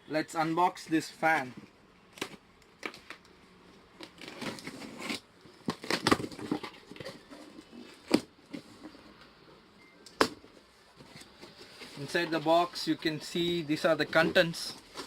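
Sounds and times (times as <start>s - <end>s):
cardboard packaging rustling: 4.0s - 9.0s.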